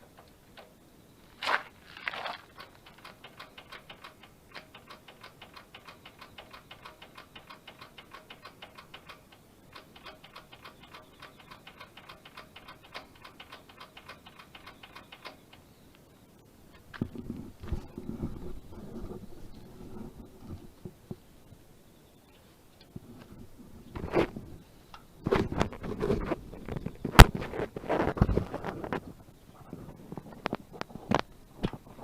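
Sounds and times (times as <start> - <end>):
diesel engine ticking clatter: 2.4 - 15.7.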